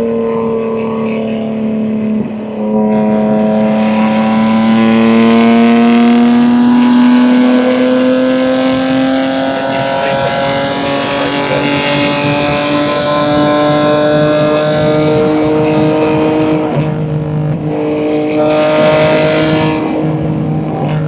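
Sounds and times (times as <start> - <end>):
car exhaust at steady speed: 0.0 - 21.0.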